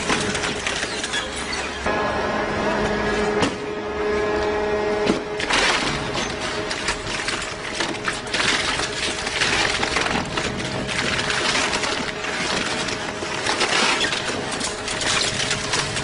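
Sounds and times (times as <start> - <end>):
shredder crunching and tearing: 0.0 - 1.2, 5.2 - 16.0
machine hum: 0.0 - 16.0.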